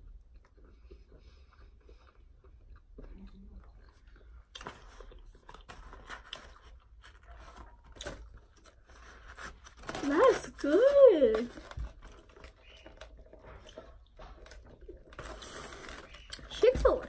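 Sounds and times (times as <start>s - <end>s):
person chewing crunchy food: 0.0s - 8.9s, 11.8s - 16.5s.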